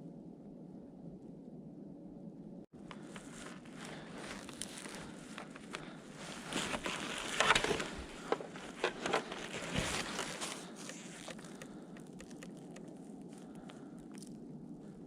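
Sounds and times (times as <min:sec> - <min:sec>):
footsteps on dry leaves and twigs: 0:02.8 - 0:14.4.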